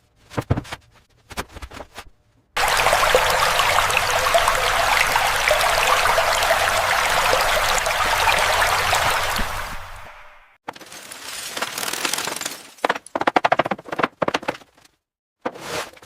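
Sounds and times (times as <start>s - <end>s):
rushing splashing water: 2.6s - 10.6s.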